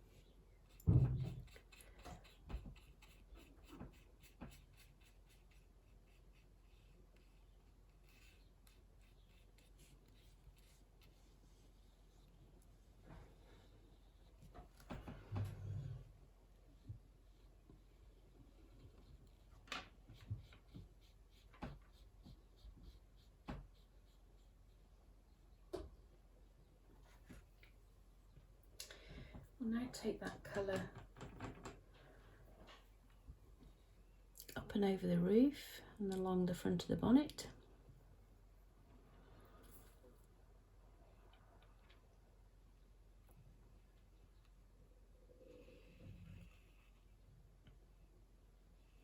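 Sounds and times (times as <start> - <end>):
paintbrush strokes on paper: 0.0 - 14.7, 16.0 - 25.3.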